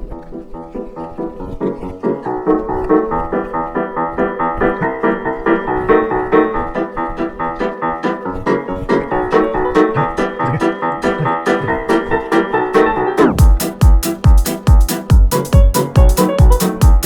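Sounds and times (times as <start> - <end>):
keyboard music: 0.0 - 17.0.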